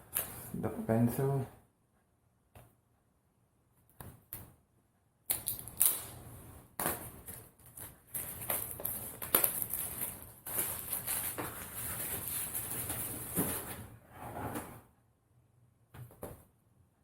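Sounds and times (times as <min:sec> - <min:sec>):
cardboard packaging crinkling: 0:06.9 - 0:13.8.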